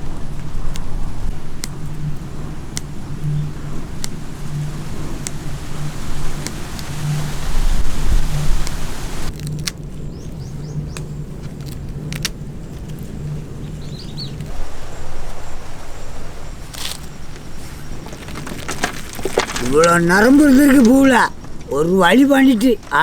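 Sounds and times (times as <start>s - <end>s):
bird chirps: 10.1s - 11.2s, 13.2s - 18.1s.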